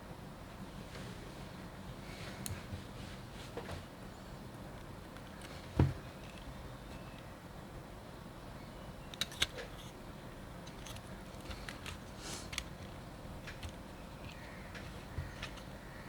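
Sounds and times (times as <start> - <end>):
low steady hiss: 0.0 - 16.0
small clicks of tools on camera parts: 9.1 - 10.0.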